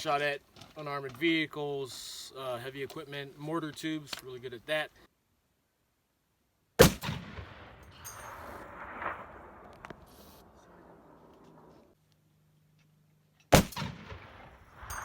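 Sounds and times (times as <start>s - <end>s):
rifle shot with rolling echo: 6.8s - 11.8s, 13.5s - 15.0s.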